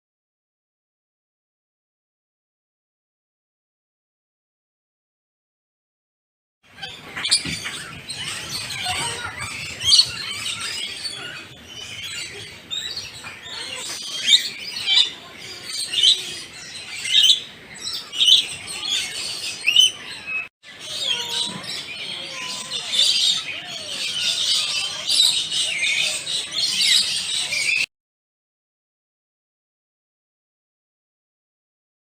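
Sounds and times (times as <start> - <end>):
birds chirping: 6.7 - 27.9.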